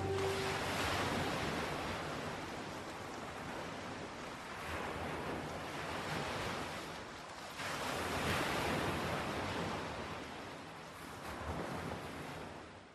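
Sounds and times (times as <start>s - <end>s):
ocean waves washing in: 0.0s - 6.6s.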